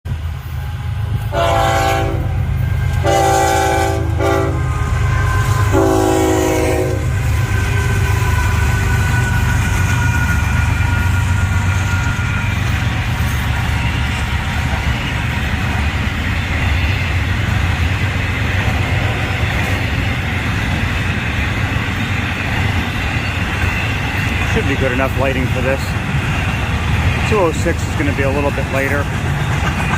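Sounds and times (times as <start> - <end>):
freight train rumbling past: 0.0 - 29.9
locomotive horn blasts: 1.2 - 8.2.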